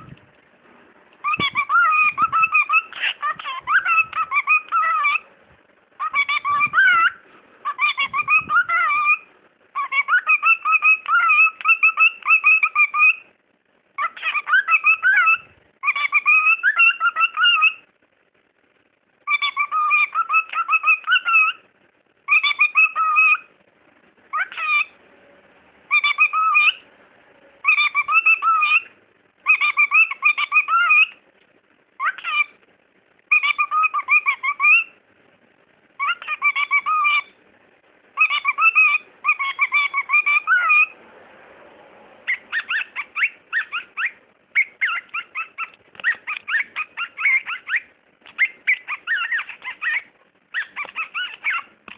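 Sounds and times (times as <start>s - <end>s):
cockatiel chattering and chirping: 1.2s - 5.2s, 6.0s - 13.3s, 14.0s - 17.8s, 19.3s - 21.6s, 22.3s - 23.5s, 24.3s - 25.0s, 25.9s - 26.8s, 27.6s - 31.2s, 32.0s - 32.6s, 33.3s - 35.0s, 36.0s - 37.4s, 38.2s - 41.0s, 42.2s - 51.9s.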